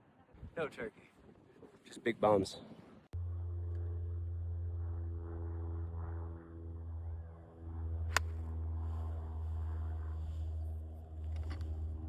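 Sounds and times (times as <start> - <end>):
low hum: 3.0 - 12.0
golf club striking ball: 8.1 - 8.4.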